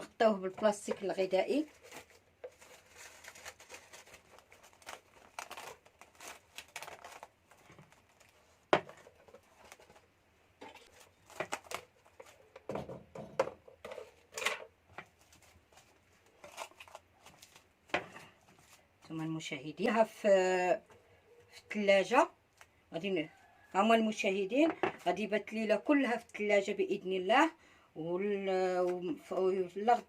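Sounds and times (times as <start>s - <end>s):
plastic cling film crinkling: 0.9s - 12.7s, 14.0s - 19.0s.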